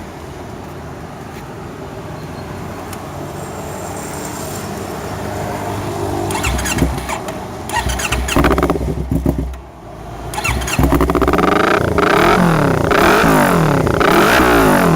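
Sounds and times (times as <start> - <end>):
engine throttle blips: 6.3 - 14.9
motorcycle engine idling: 6.3 - 14.9.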